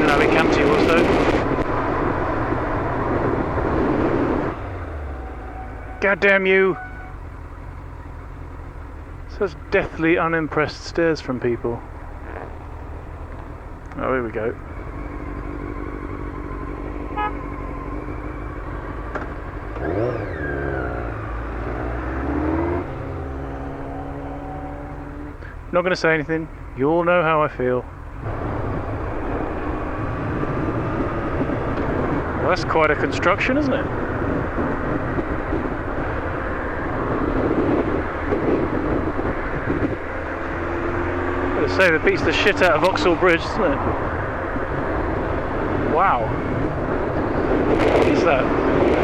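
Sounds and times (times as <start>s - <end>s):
wind rush on microphone: 0.0s - 7.1s, 28.2s - 49.0s
motorcycle engine revving: 0.0s - 10.4s, 11.2s - 25.8s, 26.4s - 49.0s.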